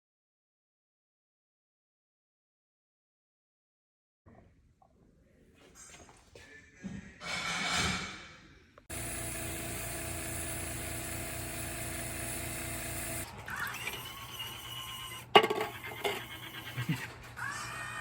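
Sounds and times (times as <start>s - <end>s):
motor pulsing hum: 8.9s - 17.1s.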